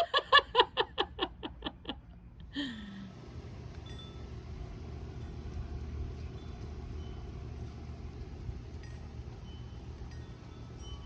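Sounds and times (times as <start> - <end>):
person laughing: 0.0 - 3.1.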